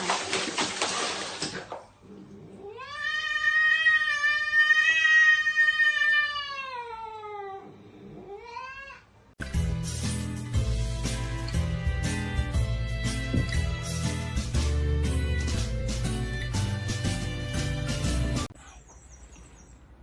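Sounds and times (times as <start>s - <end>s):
cat yowling: 2.6s - 9.1s.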